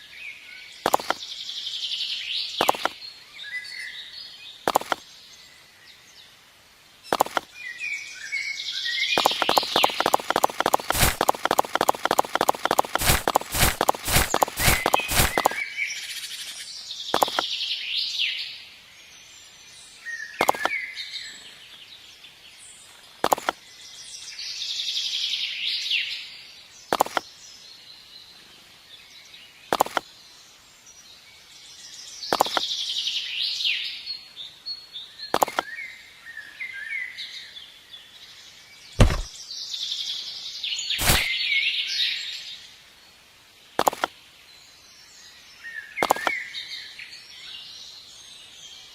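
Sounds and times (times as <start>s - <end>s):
birds chirping: 0.0s - 24.5s, 26.6s - 31.2s, 31.8s - 41.6s, 43.5s - 48.9s
sharp knocks: 39.0s - 39.3s.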